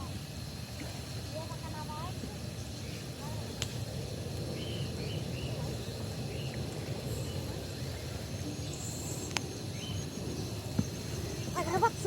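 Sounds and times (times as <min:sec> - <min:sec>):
bird chirps: 0:04.6 - 0:11.8.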